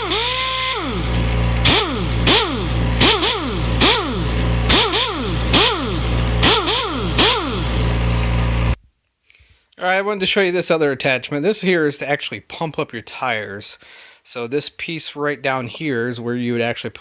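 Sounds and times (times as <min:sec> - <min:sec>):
air impact wrench whining: 0:00.0 - 0:08.8
low hum: 0:00.0 - 0:08.8.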